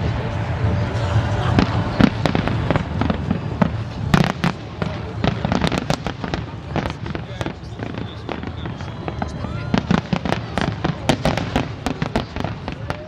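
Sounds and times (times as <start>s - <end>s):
low rumble: 0.0s - 8.3s
fireworks bangs and crackles: 0.0s - 13.0s.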